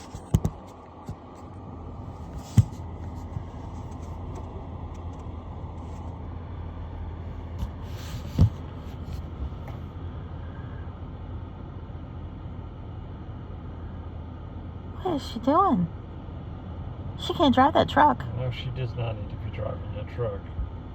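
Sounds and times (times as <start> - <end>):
vehicle engine idling: 0.0 - 20.9.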